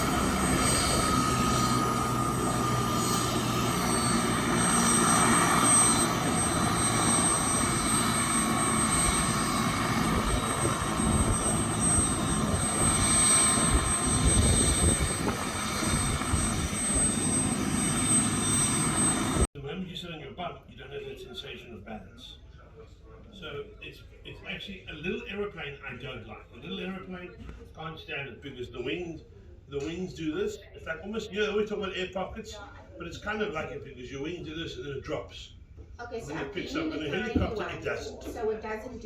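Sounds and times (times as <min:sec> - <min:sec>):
helicopter turbine and rotor: 0:00.0 - 0:19.5, 0:36.2 - 0:39.0.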